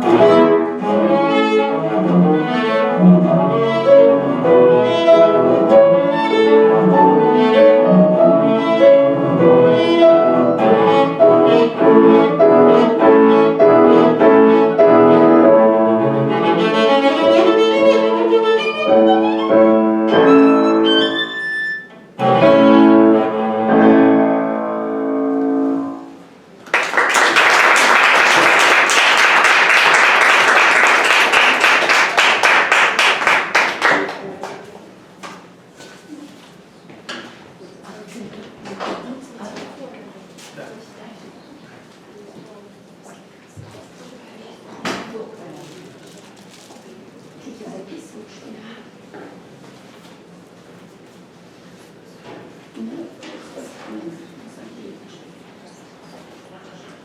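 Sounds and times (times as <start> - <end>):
bowed string instrument: 0.0 - 26.1
piano accompaniment: 0.0 - 34.3
audience applauding: 26.6 - 34.6.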